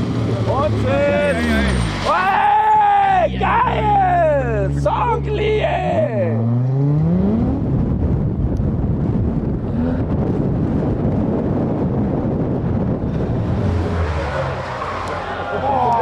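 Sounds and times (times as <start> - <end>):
faint car engine: 0.0 - 16.0
wind buffeting microphone: 7.2 - 16.0.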